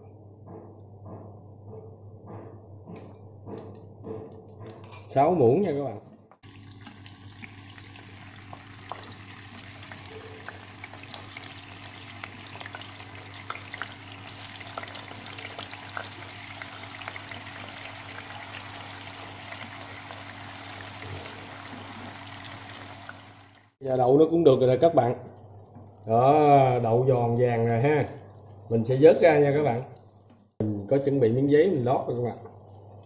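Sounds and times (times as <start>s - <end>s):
tofu sizzling in hot oil: 6.4s - 23.8s.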